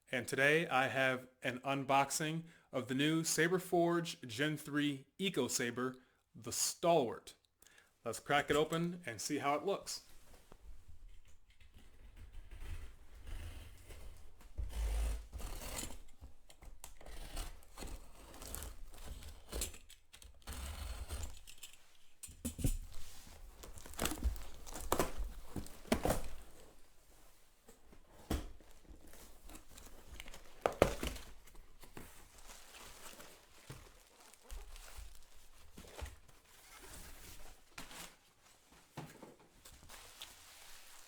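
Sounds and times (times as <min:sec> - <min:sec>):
wrapping tearing and crinkling: 0:22.8 - 0:26.8, 0:28.8 - 0:38.3.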